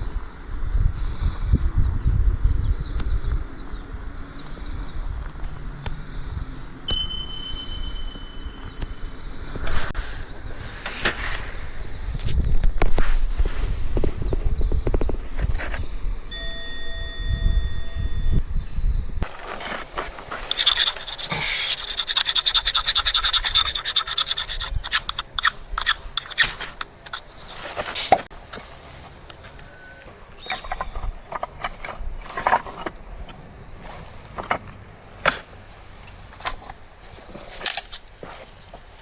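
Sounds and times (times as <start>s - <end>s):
rapid scraping: 19.2s - 28.3s.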